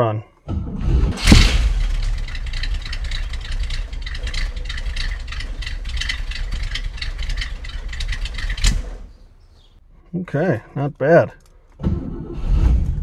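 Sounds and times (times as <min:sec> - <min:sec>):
car engine cold start burst: 0:01.2 - 0:09.2
car engine idling roughly: 0:01.2 - 0:09.2.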